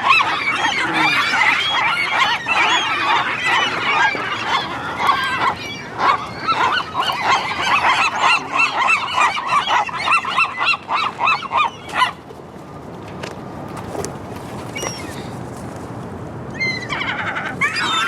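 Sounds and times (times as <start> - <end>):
seagulls calling: 0.0 - 12.2, 14.7 - 15.4, 16.5 - 18.0.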